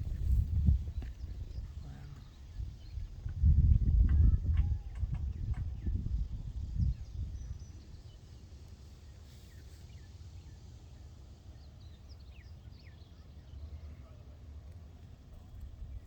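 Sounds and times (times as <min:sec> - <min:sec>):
wind rumble on microphone: 0:00.0 - 0:08.2.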